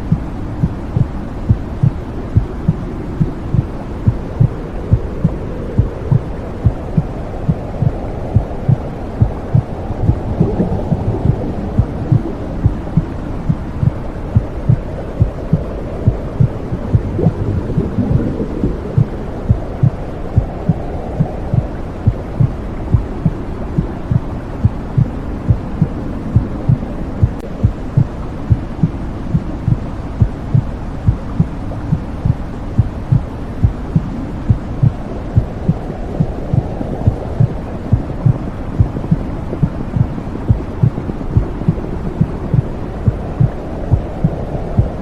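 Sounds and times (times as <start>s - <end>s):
muffled heartbeat thumps: 0.0s - 45.0s
deep whooshing rush: 2.3s - 28.8s.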